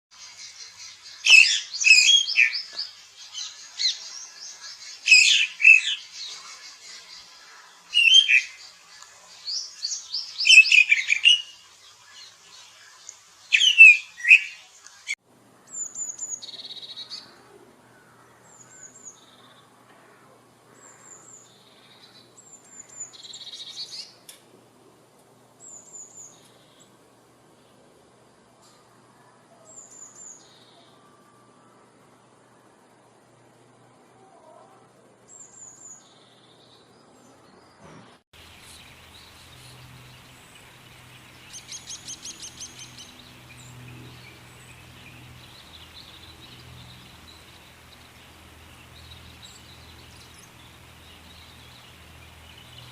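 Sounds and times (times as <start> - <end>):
bird chatter: 38.4 - 52.9
birds chirping and squawking: 38.4 - 52.9.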